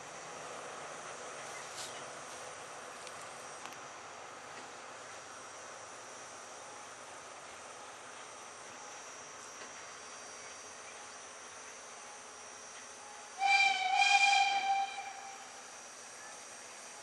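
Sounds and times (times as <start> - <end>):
steam locomotive whistle: 13.4 - 15.6.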